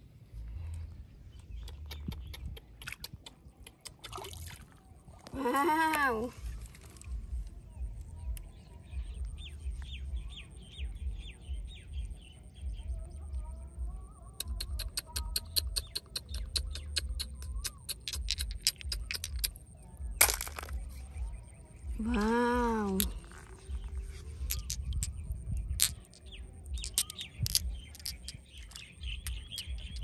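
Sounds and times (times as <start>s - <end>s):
bird chirping: 0.7s - 4.3s, 6.3s - 30.0s
sharp clicks: 14.4s - 19.6s
low rumble: 19.9s - 30.0s.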